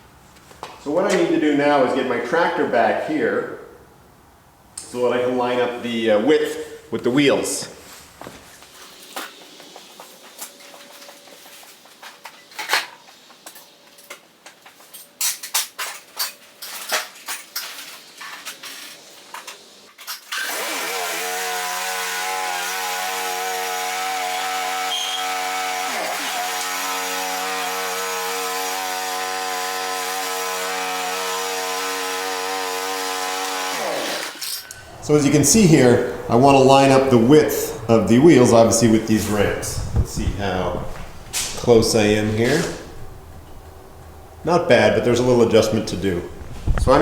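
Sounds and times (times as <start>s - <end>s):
lawn tractor engine starting: 20.3s - 47.0s.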